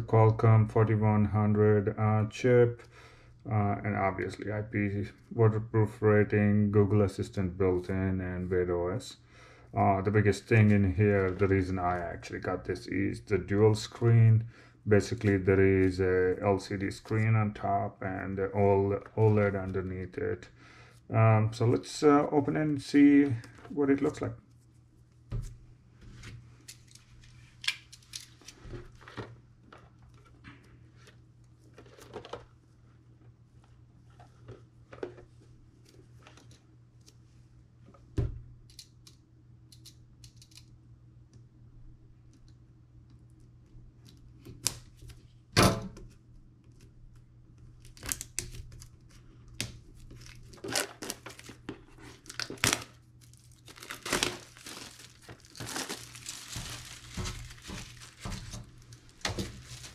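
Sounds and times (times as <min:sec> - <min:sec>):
plastic wrap tearing and crinkling: 0:47.8 - 0:49.2, 0:49.9 - 0:59.9.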